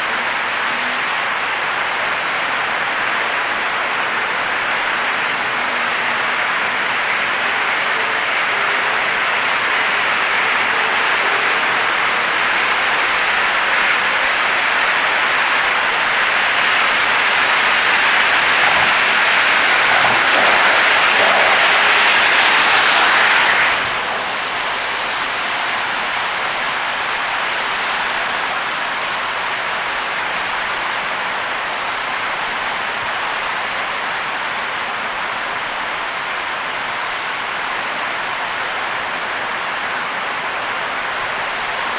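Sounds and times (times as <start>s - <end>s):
heavy rain: 0.0s - 41.9s
tyre noise on wet road: 0.2s - 29.0s.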